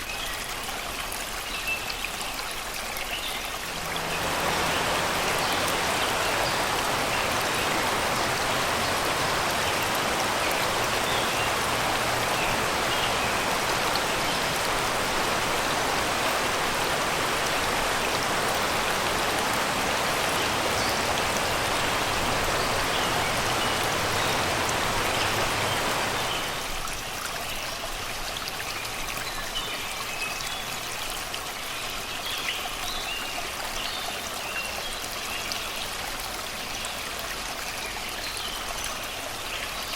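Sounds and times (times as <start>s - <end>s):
small birds singing: 1.4s - 26.7s
river rushing over rocks: 3.4s - 27.3s.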